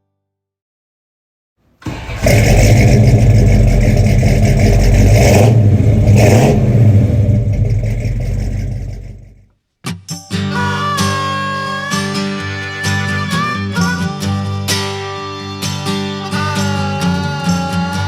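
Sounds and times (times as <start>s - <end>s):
diesel engine revving: 1.8s - 9.5s
guitar music: 9.8s - 18.0s.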